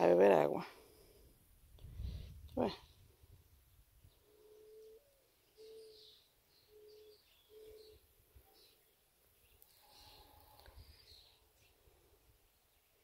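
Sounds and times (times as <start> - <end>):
faint bird chirps: 2.7 - 13.0
bird hooting: 4.2 - 8.7.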